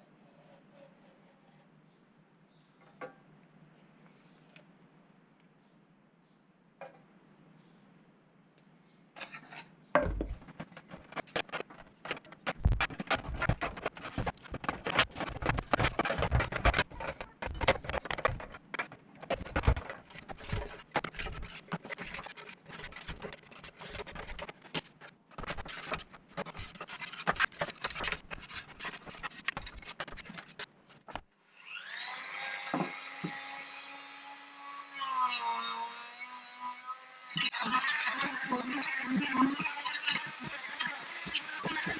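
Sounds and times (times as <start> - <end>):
hand scraping metal: 9.2 - 31.2, 38.0 - 41.9.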